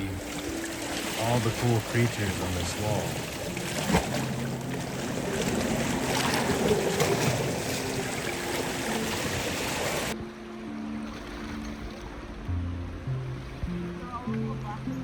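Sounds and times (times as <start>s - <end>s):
sea water lapping against rock: 0.0s - 10.2s
water splashes and drips: 0.0s - 10.2s, 10.9s - 14.8s.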